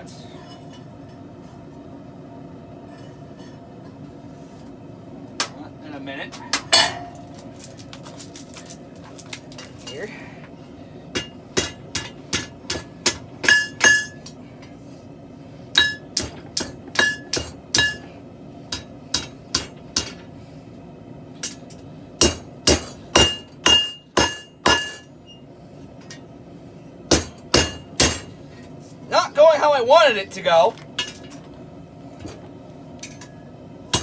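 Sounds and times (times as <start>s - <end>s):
hammer blows on anvil: 22.2s - 25.1s, 27.1s - 28.4s.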